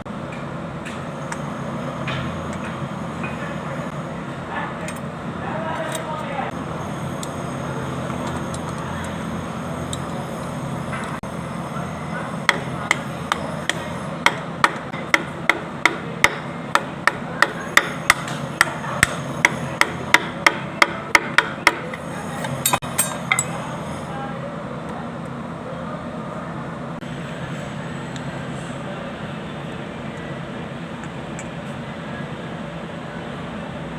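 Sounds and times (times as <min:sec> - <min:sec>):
steady background hum: 0:00.0 - 0:33.9
hammer tapping: 0:12.5 - 0:22.0.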